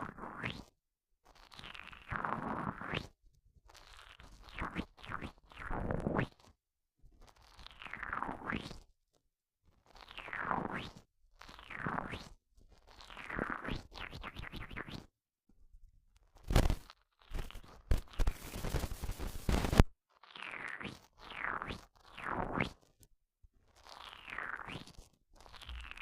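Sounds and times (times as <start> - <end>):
toy rubbing on microphone: 11.5 - 15.1, 16.4 - 19.9, 23.7 - 26.0.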